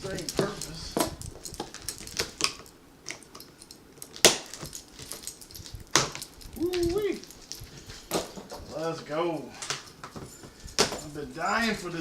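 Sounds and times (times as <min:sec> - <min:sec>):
keys scraping plastic wrap and tape: 0:00.0 - 0:08.8
plastic crinkling: 0:04.0 - 0:08.8.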